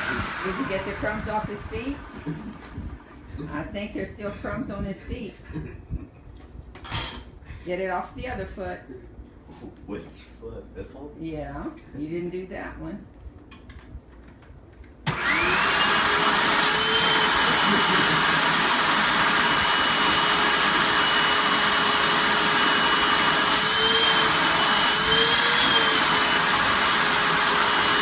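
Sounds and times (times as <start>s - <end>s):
vacuum cleaner motor whine: 0.0s - 3.0s, 15.1s - 28.0s.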